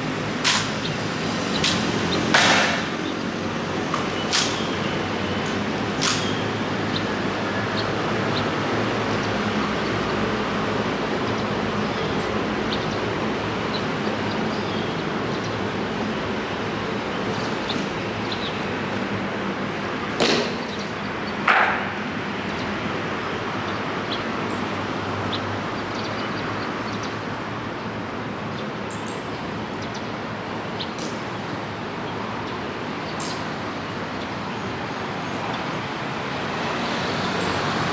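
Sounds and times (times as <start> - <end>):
sharp knocks: 1.6 - 3.0, 20.2 - 22.1.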